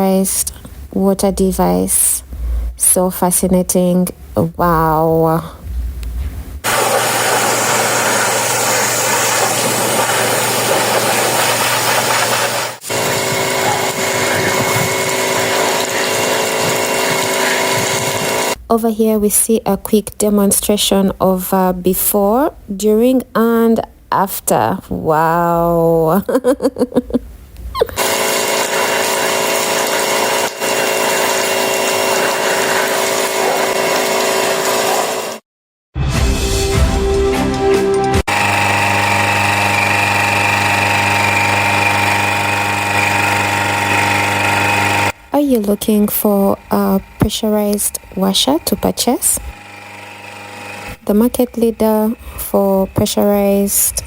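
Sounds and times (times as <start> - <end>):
high-pressure water jet hissing: 6.6 - 18.6
pressure washer motor hum: 6.6 - 18.6, 28.0 - 35.4, 38.3 - 54.0.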